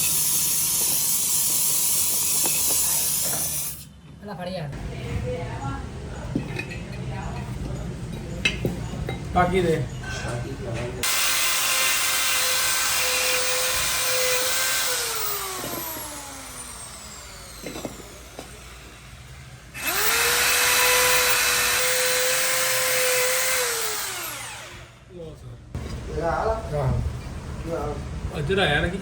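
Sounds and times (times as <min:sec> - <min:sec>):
electric power tool running: 0:11.0 - 0:25.1.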